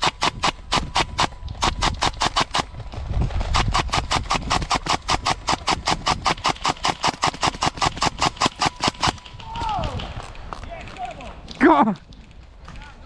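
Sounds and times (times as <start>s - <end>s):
airsoft gun firing rapidly: 0.0s - 2.8s, 3.5s - 10.2s.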